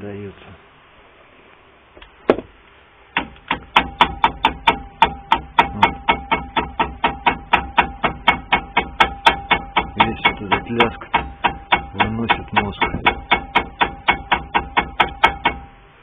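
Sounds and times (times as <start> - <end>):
brake caliper knocking: 3.1 - 15.8.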